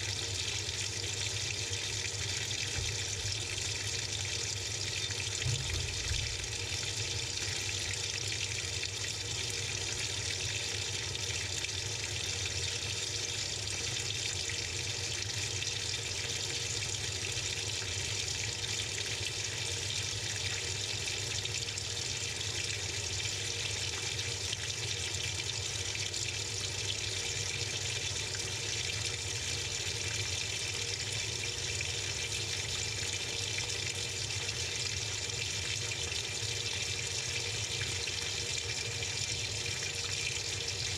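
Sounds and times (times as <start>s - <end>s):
water pouring into washing machine: 0.0s - 40.9s.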